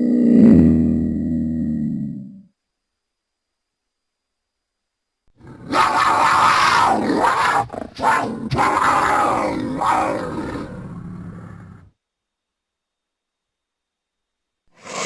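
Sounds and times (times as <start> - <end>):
harsh monster roar: 5.4 - 11.9.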